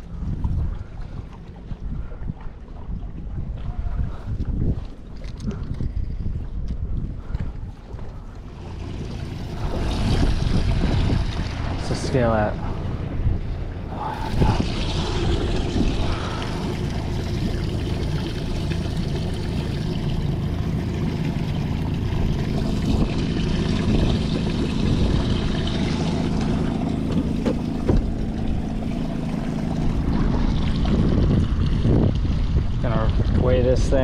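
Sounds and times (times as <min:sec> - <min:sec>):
pump humming: 0:08.2 - 0:32.8
water pouring and splashing: 0:08.4 - 0:13.0, 0:13.8 - 0:34.0.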